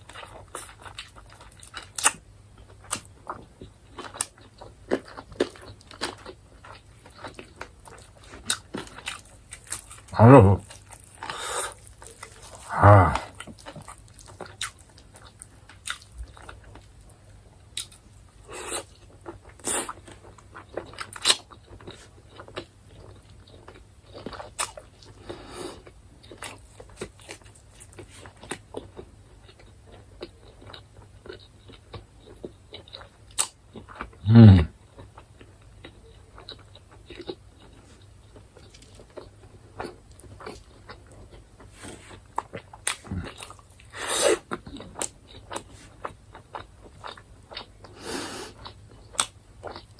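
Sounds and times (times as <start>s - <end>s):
wet chewing and biting: 0.1s - 16.9s, 35.0s - 49.9s
low vocal sound: 10.2s - 10.6s, 12.5s - 13.4s, 34.2s - 34.7s.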